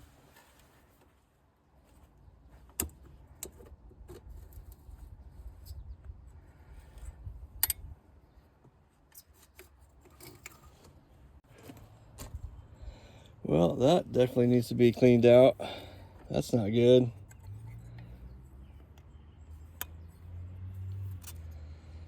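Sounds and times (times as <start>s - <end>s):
metallic clicks of hand tools: 7.6s - 7.9s, 20.9s - 21.6s.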